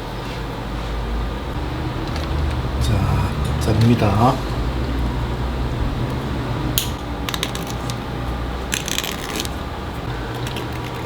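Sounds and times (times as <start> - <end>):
steady low hum: 0.0 - 11.0
small metal pieces clinking: 6.9 - 8.0, 8.7 - 9.6.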